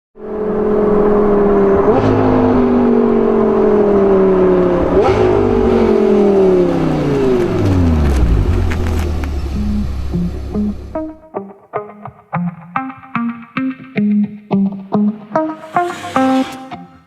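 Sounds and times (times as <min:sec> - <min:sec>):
sports car engine revving: 0:00.2 - 0:11.2.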